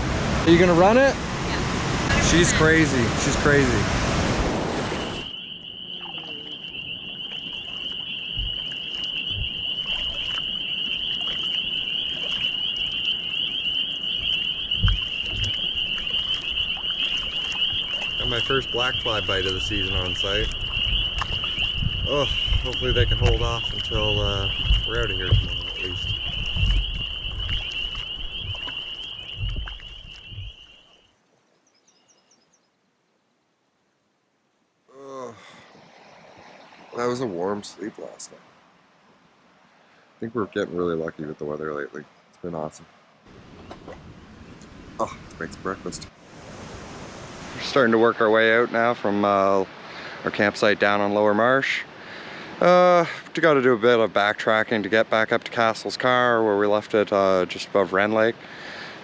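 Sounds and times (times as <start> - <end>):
frogs trilling: 4.5 - 32.7
faint high chirps: 4.9 - 32.7
dull low thumps: 8.4 - 10.4, 14.2 - 30.6.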